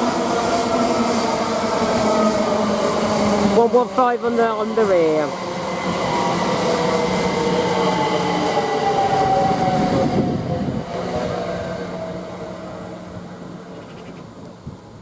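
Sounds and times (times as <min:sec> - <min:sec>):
rail noise: 0:00.0 - 0:15.0.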